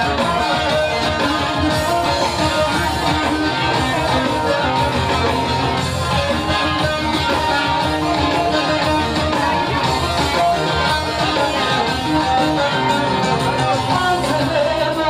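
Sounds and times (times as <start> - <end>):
plucked string instrument folk music: 0.0 - 15.0.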